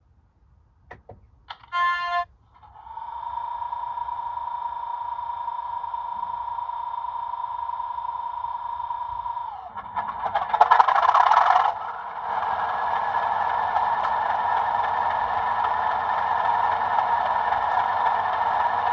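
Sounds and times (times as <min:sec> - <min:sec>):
short tone: 0:01.5 - 0:02.3
model diesel engine sound whining: 0:01.6 - 0:18.9.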